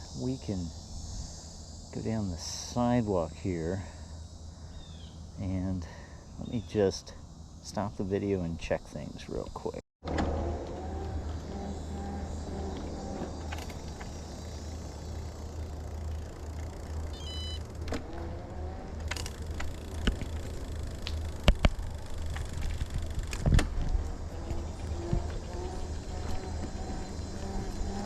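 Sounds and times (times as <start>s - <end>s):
wind and tyre rumble: 9.4s - 28.0s
high beep: 17.2s - 17.6s.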